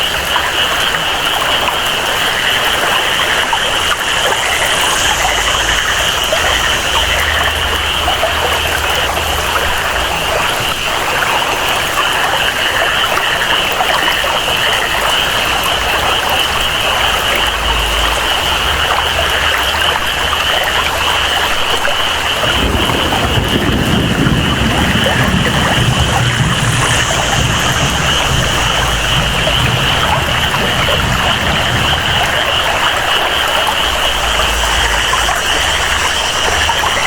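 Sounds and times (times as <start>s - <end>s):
chorus of jungle animals: 0.0s - 37.0s
flowing water: 0.0s - 37.0s
steady rainfall: 0.0s - 37.0s
low rumble: 3.2s - 10.8s, 22.2s - 37.0s.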